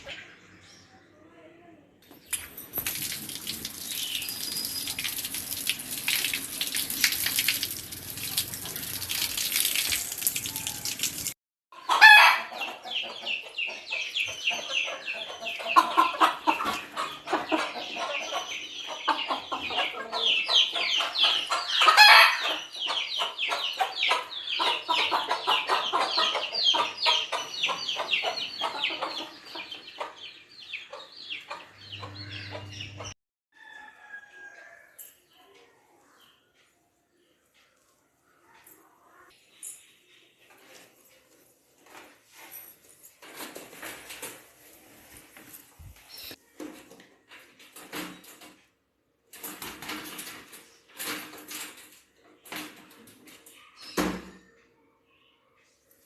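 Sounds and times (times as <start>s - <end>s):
chickens clucking: 11.8s - 33.2s.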